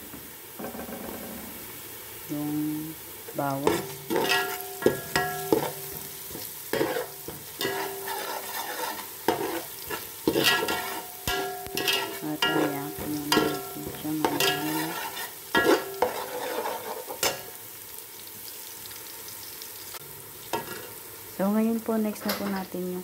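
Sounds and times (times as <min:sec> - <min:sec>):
onions sizzling in oil: 0:00.0 - 0:23.0
metal spoon scraping a pot: 0:03.6 - 0:17.4.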